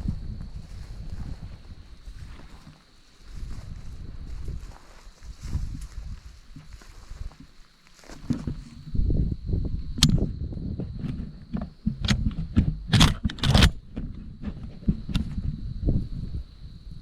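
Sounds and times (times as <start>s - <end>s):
footsteps in a field: 0.0s - 13.2s, 13.8s - 16.4s
clothing and gear rustling: 0.6s - 9.0s
sharp clicks and rattles: 11.0s - 15.4s.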